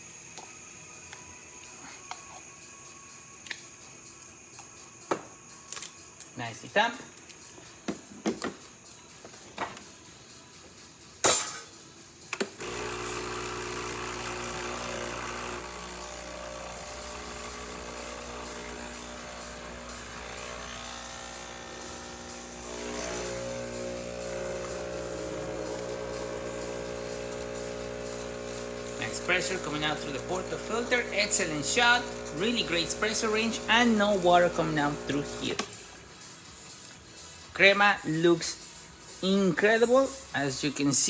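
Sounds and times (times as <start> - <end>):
espresso machine pump humming: 0.0 - 6.3, 12.6 - 35.8.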